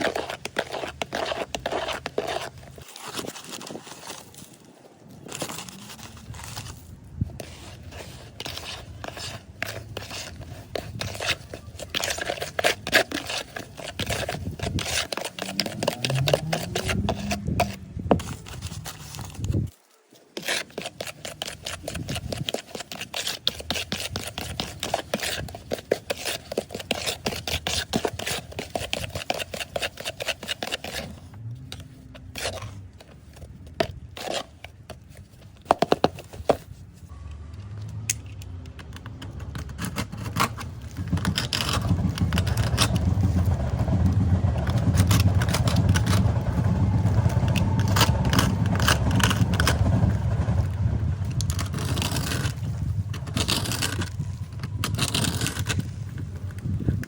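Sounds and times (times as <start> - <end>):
hand tool scraping wall: 0.0 - 4.3, 5.3 - 36.8, 39.4 - 57.0
steady low rumble: 40.3 - 57.0.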